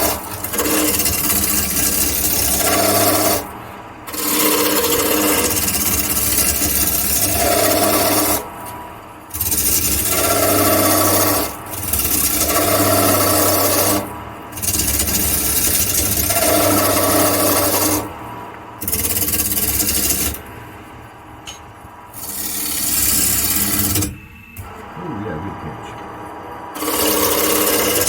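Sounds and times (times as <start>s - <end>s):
chisel scraping wood on lathe: 0.0s - 3.4s, 4.1s - 8.4s, 9.3s - 14.0s, 14.6s - 18.1s, 18.8s - 20.4s, 22.1s - 24.1s, 26.8s - 28.0s
lathe humming: 0.0s - 28.0s.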